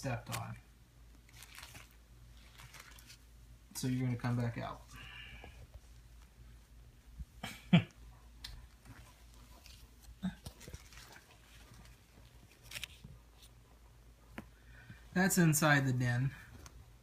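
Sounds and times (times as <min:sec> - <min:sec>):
kittens scratching and rustling: 0:01.1 - 0:03.6, 0:08.5 - 0:13.9.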